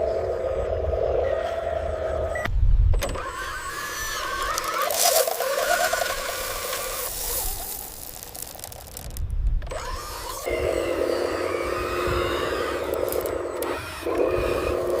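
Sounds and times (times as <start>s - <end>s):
small electric motors whining: 3.0s - 15.0s.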